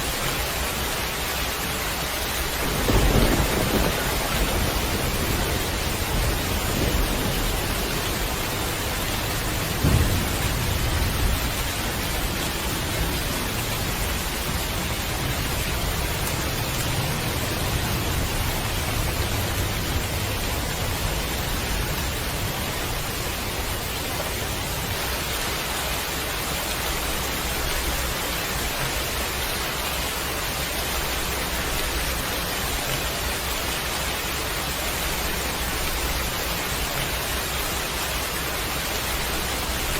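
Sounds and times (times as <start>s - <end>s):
heavy rain: 0.0s - 39.9s
thunder rumbling: 2.2s - 25.5s.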